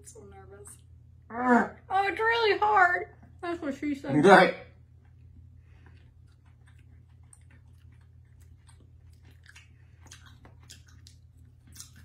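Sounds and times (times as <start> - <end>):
chewing hard dried snack: 5.0 - 12.0.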